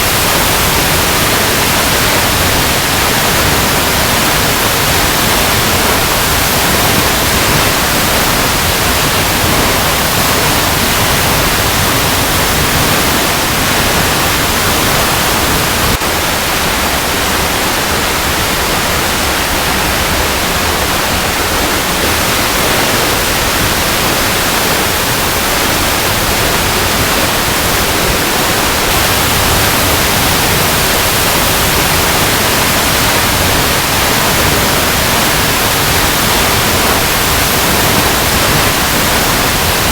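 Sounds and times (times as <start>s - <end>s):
waterfall over rocks: 0.0s - 39.9s.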